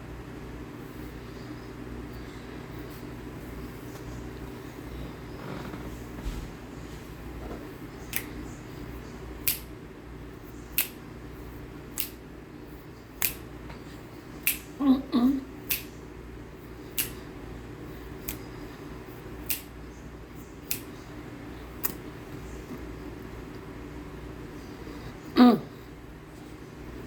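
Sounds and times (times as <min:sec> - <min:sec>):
person humming: 0:14.8 - 0:15.5, 0:25.3 - 0:25.8.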